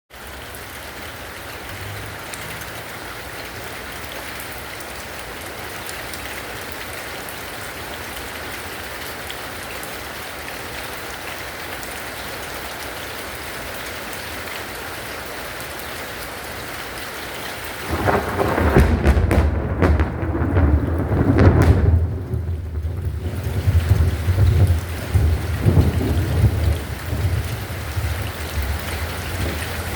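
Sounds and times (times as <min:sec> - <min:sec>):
steady rain: 0:00.1 - 0:29.9
sharp raindrop ticks: 0:17.8 - 0:29.9.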